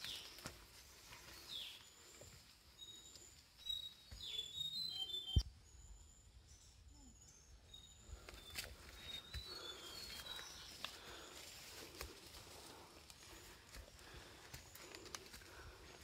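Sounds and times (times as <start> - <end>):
high whistled bird calls: 2.8 - 10.8.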